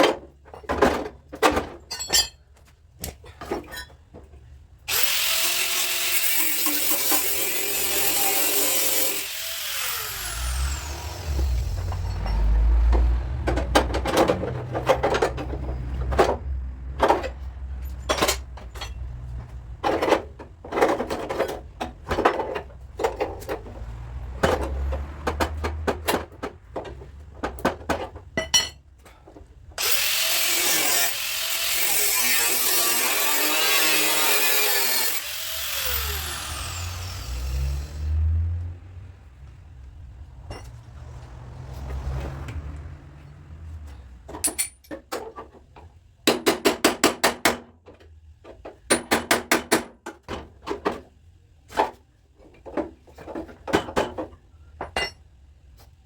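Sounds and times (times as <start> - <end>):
power tool running and winding down: 4.9 - 11.8, 29.8 - 38.2.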